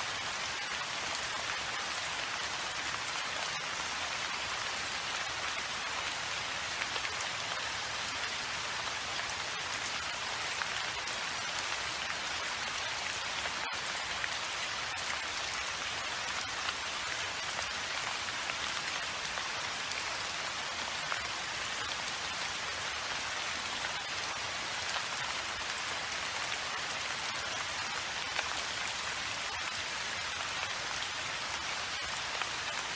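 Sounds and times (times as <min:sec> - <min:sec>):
steady rain hiss: 0:00.0 - 0:32.9.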